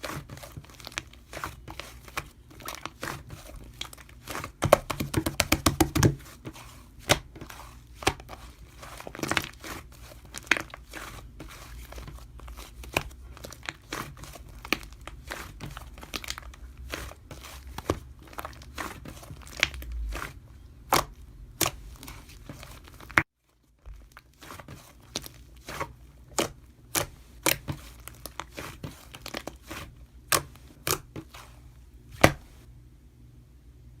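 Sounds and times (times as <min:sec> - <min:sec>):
paper or plastic crinkling and tearing: 0:00.0 - 0:05.1.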